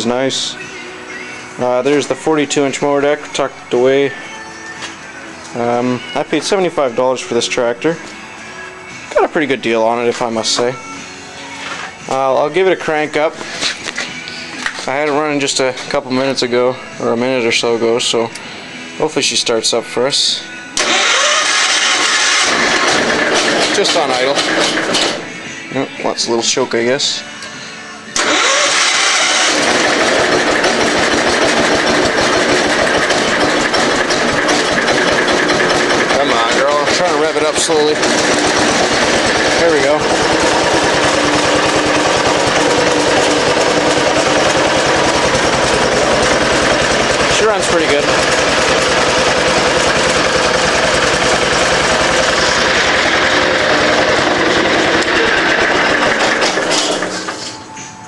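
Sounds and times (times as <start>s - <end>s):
garden tractor engine running: 20.8s - 25.2s, 28.2s - 57.6s.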